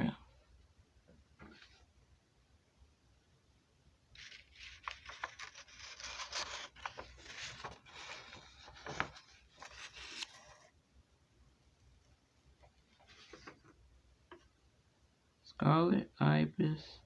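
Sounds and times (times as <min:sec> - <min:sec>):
scratchy rustling and scraping: 0:04.2 - 0:10.7, 0:12.9 - 0:13.8.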